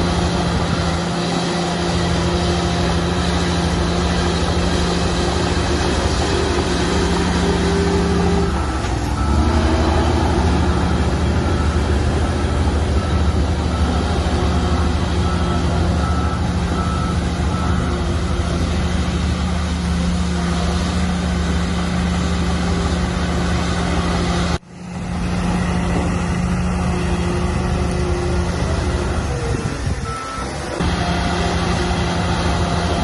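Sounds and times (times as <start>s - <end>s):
bulldozer diesel engine running: 0.0s - 33.0s
reversing alarm beeping: 5.3s - 19.4s, 29.0s - 33.0s.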